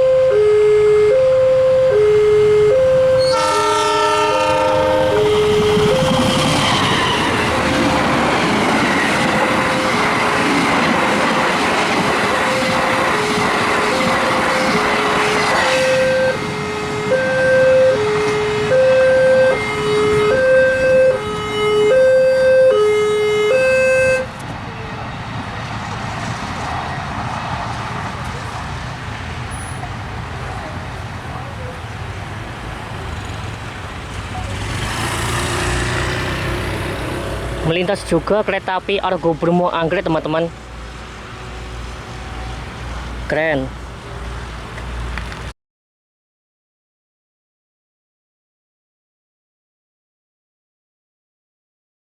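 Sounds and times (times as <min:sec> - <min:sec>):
level crossing two-tone alarm: 0:00.0 - 0:03.6, 0:04.3 - 0:06.9, 0:12.3 - 0:15.0, 0:15.7 - 0:24.3
diesel train horn: 0:00.0 - 0:08.3, 0:09.2 - 0:11.4, 0:12.0 - 0:25.0
train wheels rushing on rails: 0:03.2 - 0:17.1, 0:24.2 - 0:45.5.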